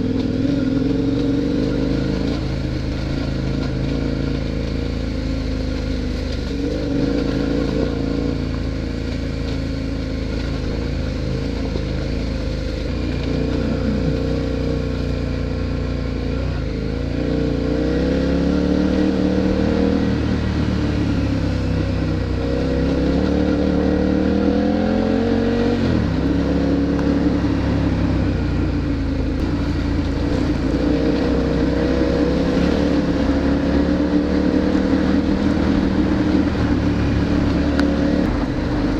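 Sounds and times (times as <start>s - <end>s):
motorcycle engine revving: 0.0s - 38.9s
wind and road noise: 0.0s - 38.9s.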